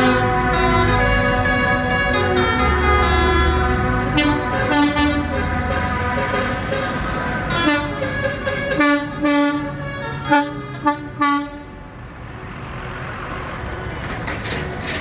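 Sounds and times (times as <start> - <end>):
vehicle horns tooting: 0.0 - 11.8.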